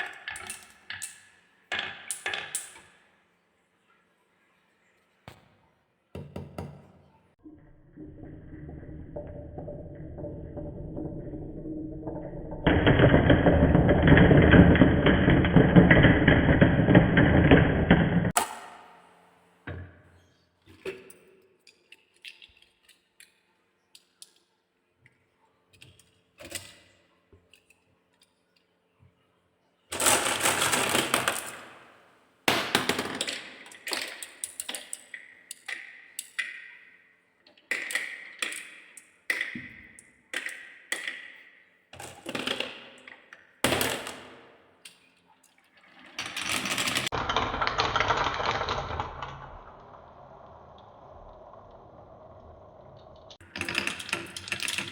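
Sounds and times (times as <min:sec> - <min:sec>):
marbles rolling and clattering on tracks: 0:00.0 - 0:03.0, 0:07.6 - 0:18.4, 0:29.9 - 0:32.0, 0:32.6 - 0:45.0, 0:45.7 - 0:54.9.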